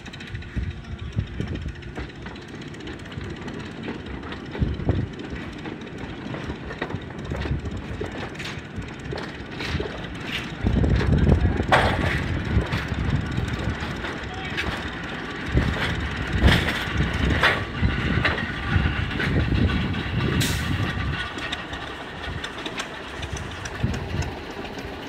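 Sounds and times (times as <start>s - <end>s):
locomotive low rumble: 0.0s - 25.0s
wagon wheels clicking over rail joints: 0.0s - 25.0s.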